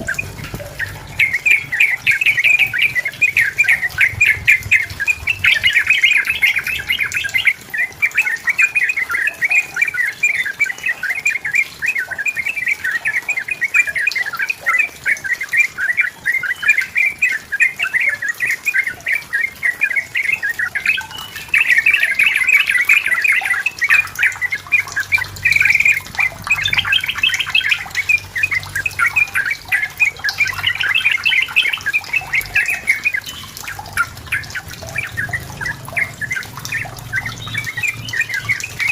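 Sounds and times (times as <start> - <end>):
bulbul chattering song: 0.0 - 38.9.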